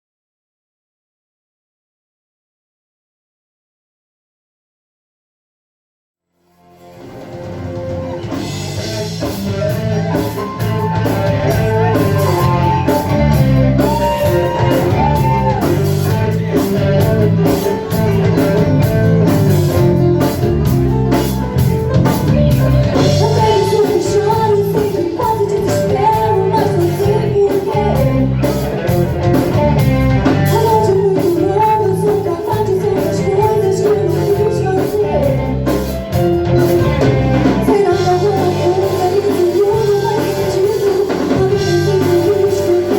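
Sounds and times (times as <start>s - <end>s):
bass: 6.5s - 42.9s
drum beat: 7.4s - 32.8s.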